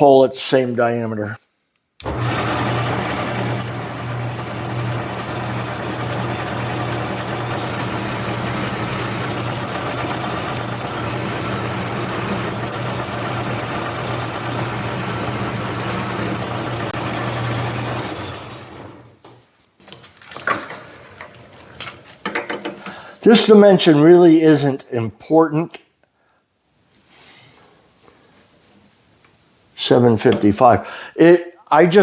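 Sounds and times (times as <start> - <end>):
metal lathe motor hum: 2.0 - 19.2.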